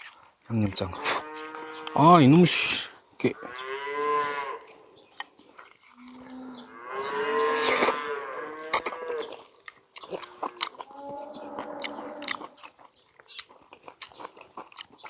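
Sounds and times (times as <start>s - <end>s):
cow mooing: 1.0s - 2.5s, 3.4s - 4.7s, 6.0s - 9.4s, 10.3s - 12.4s.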